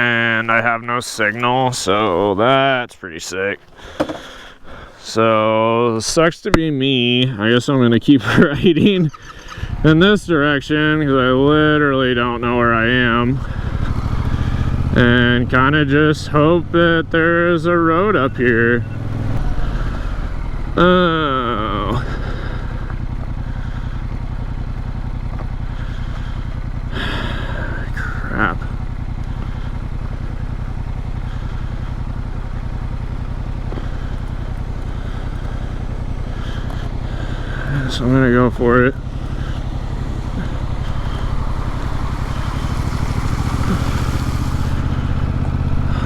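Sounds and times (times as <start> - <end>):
motorcycle engine running at low revs: 3.6 - 7.4, 8.2 - 46.0
steady rushing noise: 34.2 - 45.9.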